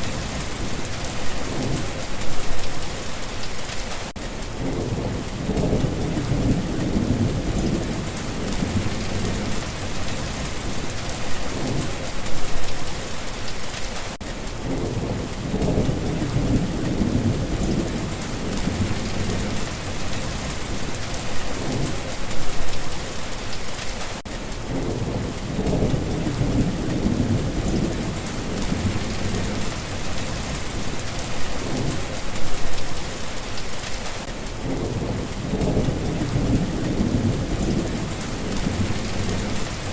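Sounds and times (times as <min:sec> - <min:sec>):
steady rain hissing: 0:00.0 - 0:39.9
thunder rumbling: 0:04.5 - 0:13.2, 0:14.6 - 0:23.1, 0:24.6 - 0:33.4, 0:34.5 - 0:39.9.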